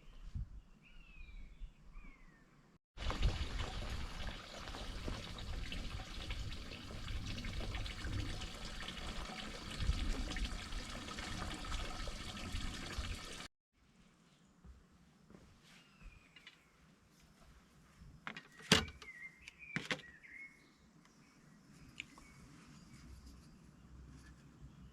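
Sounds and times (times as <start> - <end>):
water running and splashing: 3.0 - 13.5.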